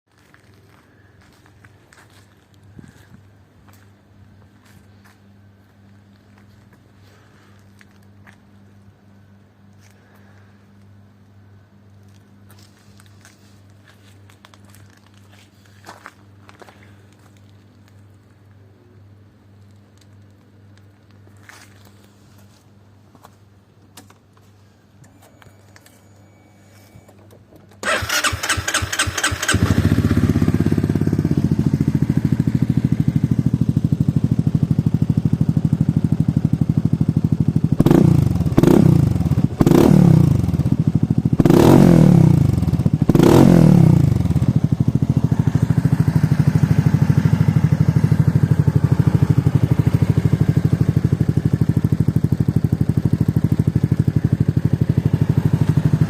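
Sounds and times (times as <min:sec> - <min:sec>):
scooter engine starting and idling: 0:26.8 - 0:56.0.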